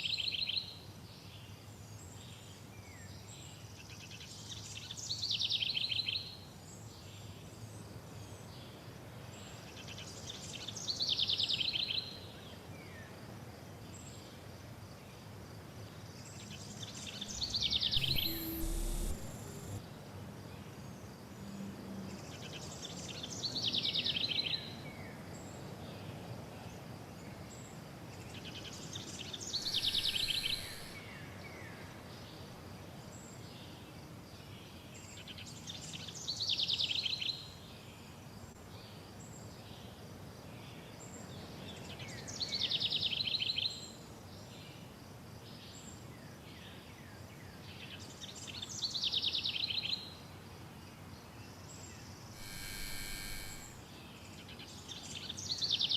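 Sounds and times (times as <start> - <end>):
steady background hiss: 29.6 - 31.0.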